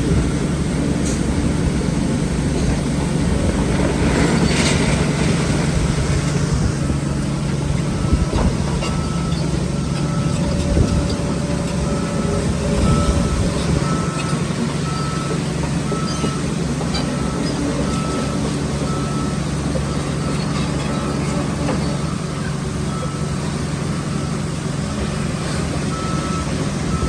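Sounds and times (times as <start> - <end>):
diesel earthmoving machinery running: 0.0 - 27.0
reversing alarm beeping: 7.8 - 23.4, 25.9 - 27.0.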